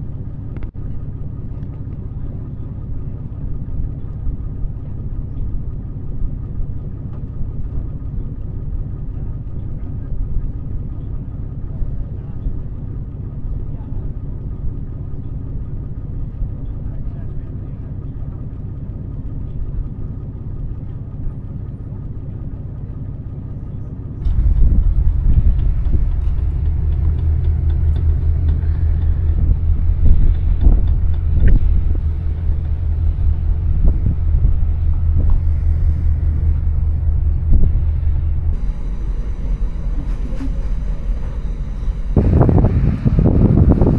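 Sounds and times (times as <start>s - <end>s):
vehicle rumbling on the move: 0.0s - 43.9s.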